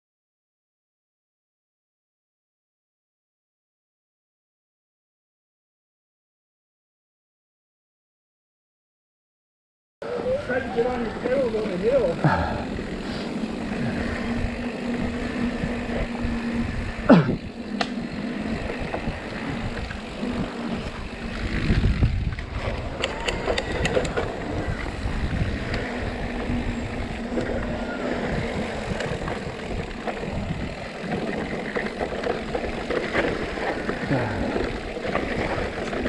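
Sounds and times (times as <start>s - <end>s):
bike rattling: 10.0s - 36.0s
bike tyres on dirt trail: 10.0s - 36.0s.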